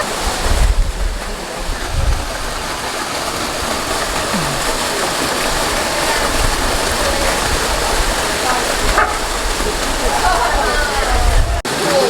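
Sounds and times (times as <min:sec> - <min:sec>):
waterfall pouring into pool: 0:00.0 - 0:12.0.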